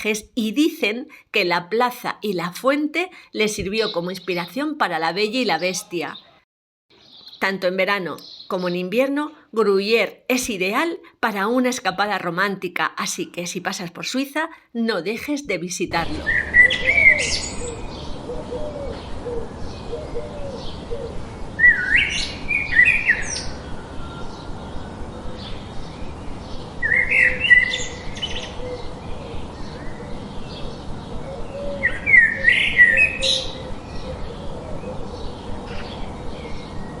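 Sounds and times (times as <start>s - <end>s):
songbird singing: 3.4s - 13.9s, 15.0s - 37.0s
background hiss: 15.9s - 37.0s.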